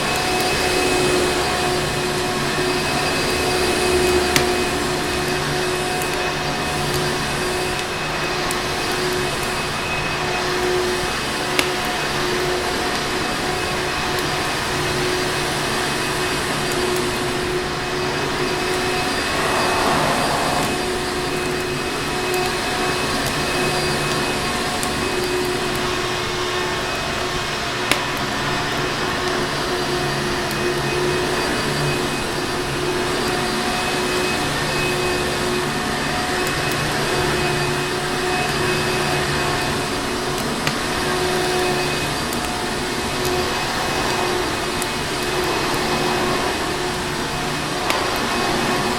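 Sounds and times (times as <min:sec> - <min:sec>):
vacuum cleaner running: 0:00.0 - 0:48.9.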